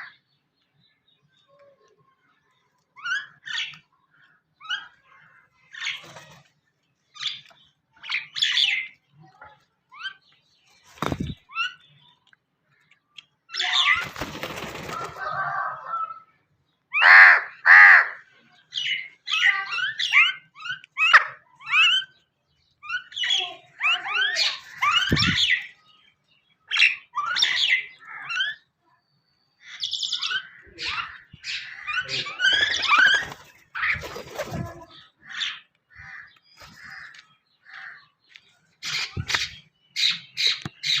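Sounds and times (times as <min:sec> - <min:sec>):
wings fluttering: 0:10.8 - 0:11.5, 0:13.8 - 0:15.4, 0:32.2 - 0:35.0
bird harsh calls: 0:16.9 - 0:28.7, 0:29.6 - 0:41.0
crow cawing: 0:17.0 - 0:18.2, 0:35.2 - 0:38.1.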